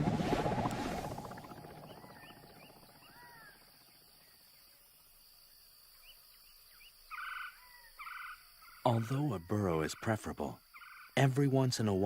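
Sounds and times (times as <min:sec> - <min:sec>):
low rumble: 0:00.0 - 0:03.9.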